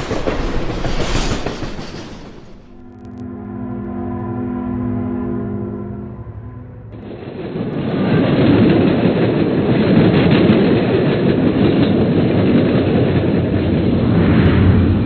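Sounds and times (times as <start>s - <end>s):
train rumbling clatter: 0.0s - 3.1s.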